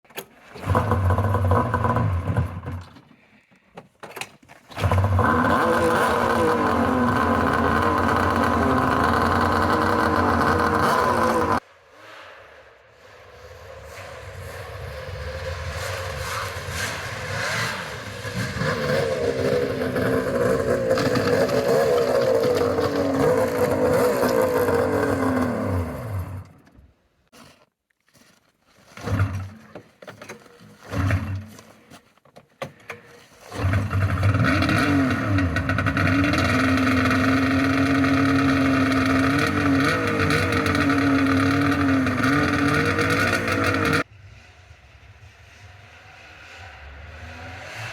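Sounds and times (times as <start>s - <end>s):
snowmobile engine running unevenly: 4.8s - 11.6s, 18.1s - 26.4s, 33.6s - 44.0s.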